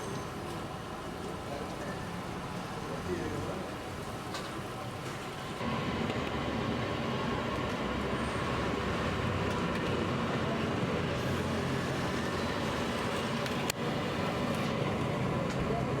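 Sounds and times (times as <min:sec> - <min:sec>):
roadside traffic noise: 0:00.0 - 0:16.0.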